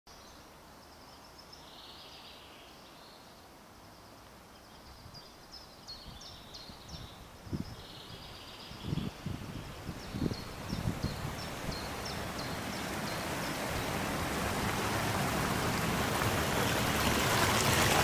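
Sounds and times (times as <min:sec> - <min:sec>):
small birds chirping: 0:00.1 - 0:14.6.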